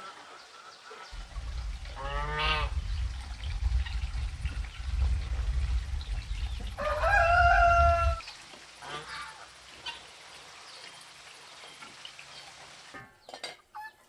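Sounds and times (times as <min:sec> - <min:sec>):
loud low rumble: 0:01.2 - 0:08.2
rooster crowing: 0:06.7 - 0:08.2.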